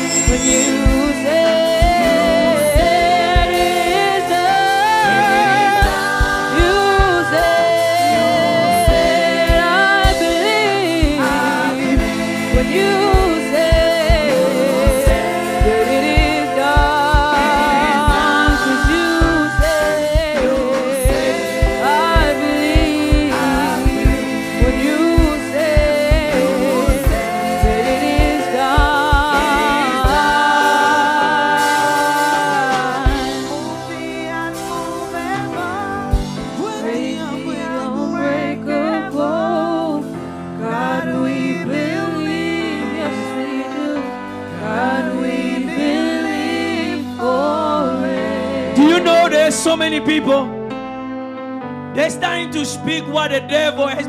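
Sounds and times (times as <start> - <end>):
band with steady drum beat: 0.0 - 37.6
voices singing with vibrato: 0.0 - 50.5
sustained instrumental chords: 0.0 - 54.0.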